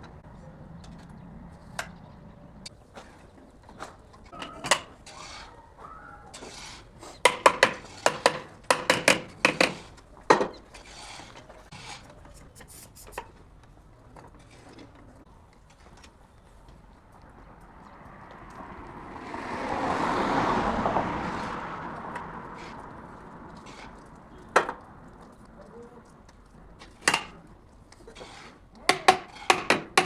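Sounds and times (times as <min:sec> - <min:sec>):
metal tools clinking and knocking: 0:04.3 - 0:05.2.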